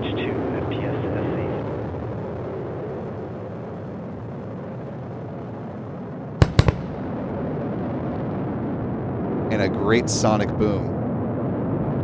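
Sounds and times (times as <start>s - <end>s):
sonic boom bangs: 6.4s - 7.6s
steady low rumble: 6.4s - 12.0s.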